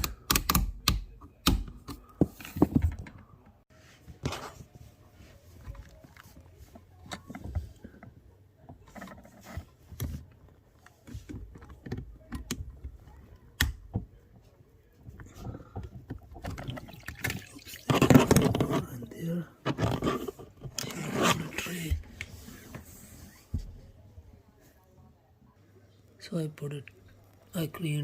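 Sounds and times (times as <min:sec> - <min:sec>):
plastic parts knocking and clicking: 0:00.0 - 0:03.3, 0:15.0 - 0:17.3, 0:17.9 - 0:18.9.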